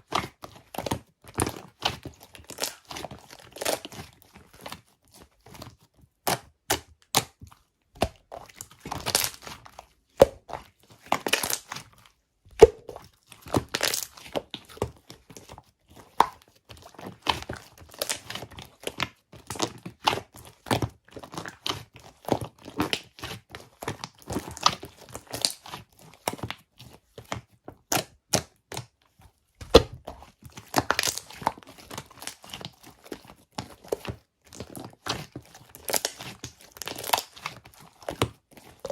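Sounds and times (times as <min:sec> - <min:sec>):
slime popping and crackling: 0:02.4 - 0:04.0, 0:08.9 - 0:09.6, 0:10.2 - 0:11.8, 0:12.6 - 0:14.4, 0:17.9 - 0:18.4, 0:29.6 - 0:32.6, 0:33.9 - 0:37.5.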